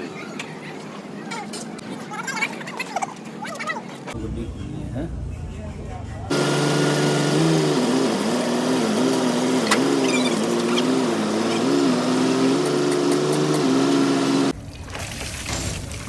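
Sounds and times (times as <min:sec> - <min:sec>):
engine running: 0:04.2 - 0:14.6.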